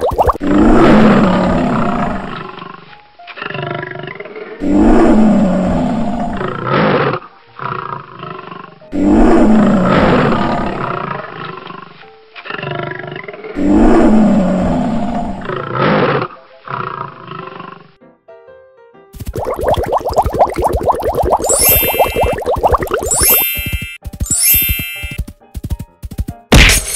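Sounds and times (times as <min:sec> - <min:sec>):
lion roaring: 0:00.4 - 0:02.8, 0:03.4 - 0:11.5, 0:12.4 - 0:17.8
lion growling: 0:12.4 - 0:17.8
rapid patterned sound effect: 0:21.3 - 0:26.5.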